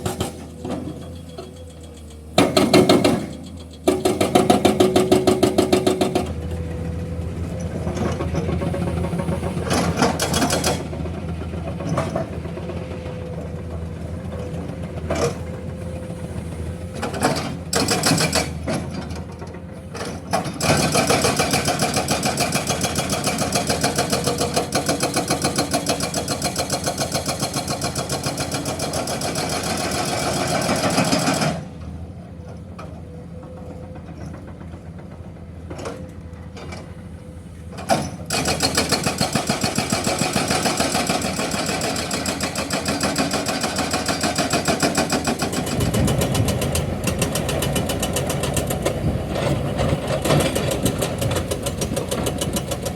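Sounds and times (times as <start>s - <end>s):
hydraulic breaker hammering rock: 0.0s - 6.6s, 17.0s - 19.2s, 20.3s - 31.7s, 37.8s - 52.9s
excavator engine running: 0.0s - 52.9s.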